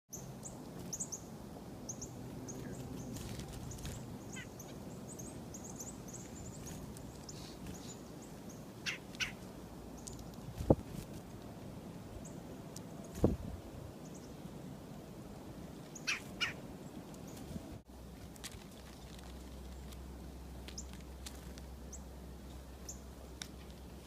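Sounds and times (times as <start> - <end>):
chickadees chip calls: 1.9 - 10.3, 15.9 - 16.6.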